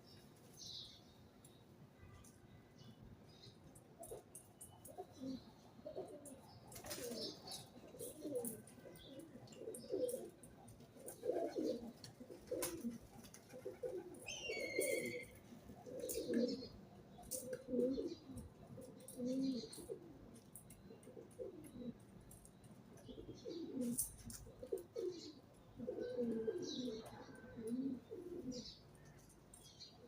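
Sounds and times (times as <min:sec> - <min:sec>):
pigeons cooing: 0:04.0 - 0:22.0, 0:22.9 - 0:28.8
small bird chirp: 0:13.4 - 0:20.0.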